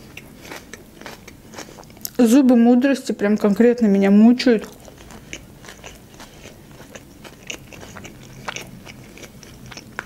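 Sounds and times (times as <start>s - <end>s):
wet chewing with crunches: 0.0s - 2.2s, 4.6s - 10.0s.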